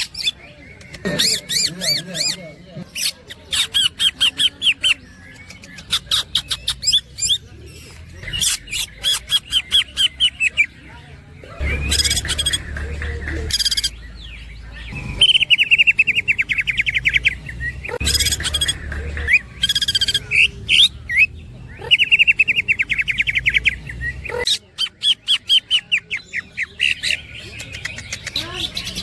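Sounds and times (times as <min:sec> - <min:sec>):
harsh bird calls: 0:00.0 - 0:29.0
spaced bird chirps: 0:00.0 - 0:29.0
bird singing rattling trills: 0:11.6 - 0:26.0.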